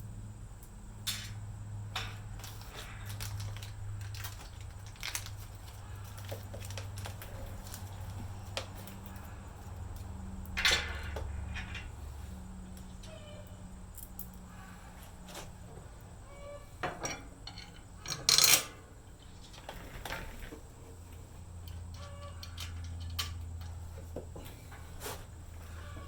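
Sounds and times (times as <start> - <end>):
steady low hum: 0.0 - 26.0
small metal hardware clinking: 10.4 - 12.0, 16.8 - 19.0, 21.6 - 24.0.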